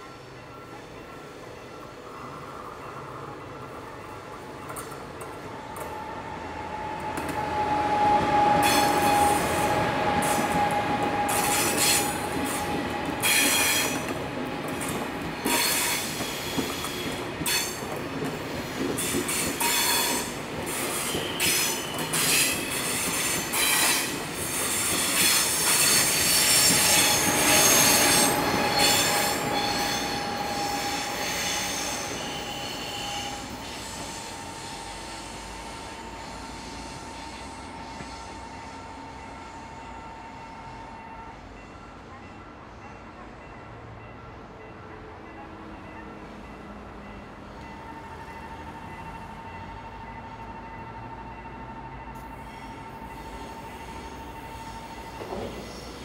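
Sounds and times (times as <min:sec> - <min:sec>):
wheels squealing against rails: 0:00.0 - 0:14.2, 0:14.8 - 0:41.6, 0:45.9 - 0:56.0
train wheels knocking on rail joints: 0:54.6 - 0:56.0.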